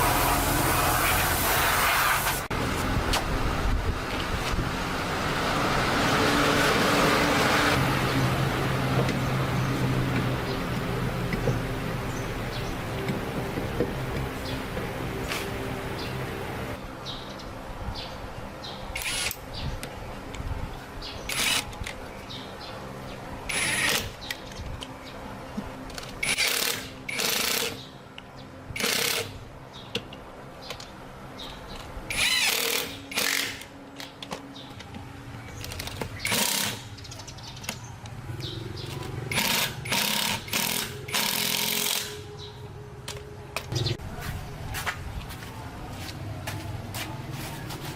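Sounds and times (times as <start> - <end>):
power tool bursts: 36.2 - 36.8, 39.3 - 42.2.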